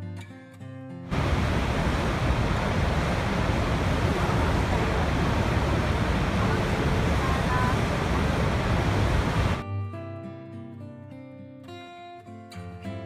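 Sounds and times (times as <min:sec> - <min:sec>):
waterfall rushing: 0:01.1 - 0:09.6.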